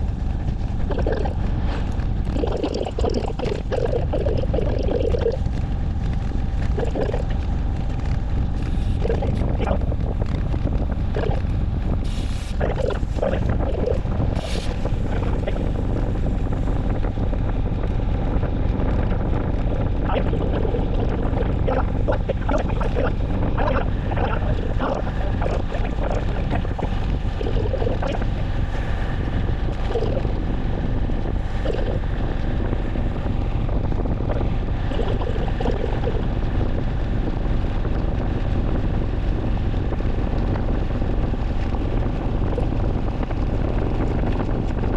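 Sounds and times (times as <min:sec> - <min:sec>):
wind rumbling on microphone: 0:00.0 - 0:44.9
faint voices: 0:19.8 - 0:28.4.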